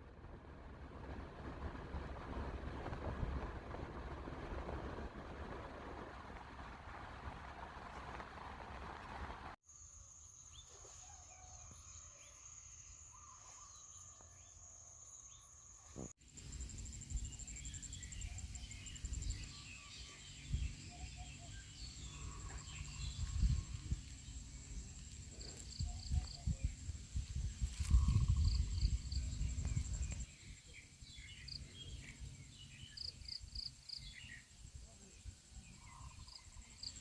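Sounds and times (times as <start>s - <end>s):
low rumble: 0.0s - 9.6s, 16.6s - 30.4s
insects trilling: 9.6s - 30.3s
small birds chirping: 17.0s - 37.0s.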